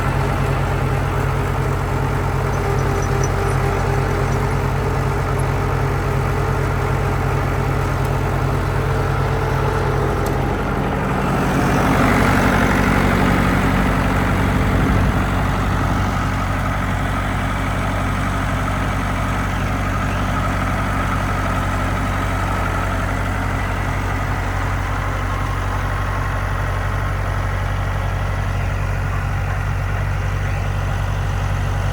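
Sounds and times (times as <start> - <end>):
diesel engine idling and revving: 0.0 - 31.9.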